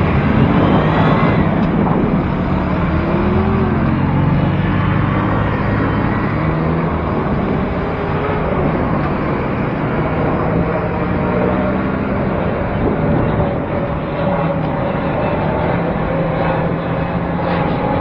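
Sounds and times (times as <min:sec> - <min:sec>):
steady road noise: 0:00.0 - 0:18.0
vehicle engines passing: 0:00.0 - 0:18.0.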